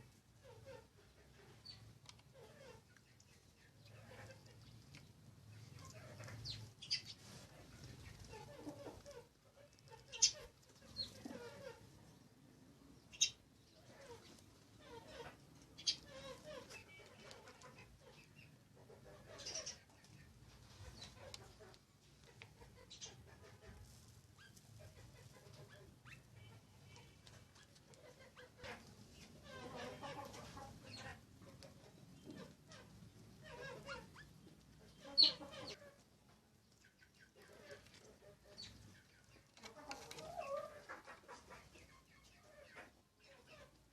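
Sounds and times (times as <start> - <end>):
sparrows chirping: 1.4 - 4.9, 5.5 - 12.3, 12.9 - 21.7, 24.4 - 35.9, 36.8 - 39.6.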